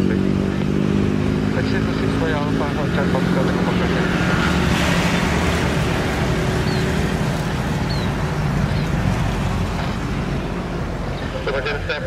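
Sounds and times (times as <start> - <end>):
airliner engines rumbling: 0.0 - 12.0.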